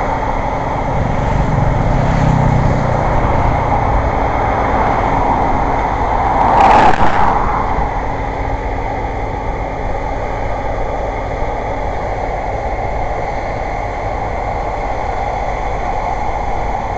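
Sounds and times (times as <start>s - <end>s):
road traffic noise: 0.0s - 16.9s
vehicle passing whoosh: 0.8s - 8.6s.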